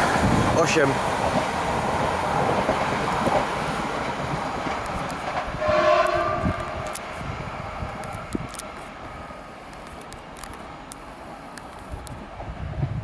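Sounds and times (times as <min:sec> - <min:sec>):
train rail noise rushing: 0:00.0 - 0:13.0
two-note train horn: 0:05.6 - 0:07.0.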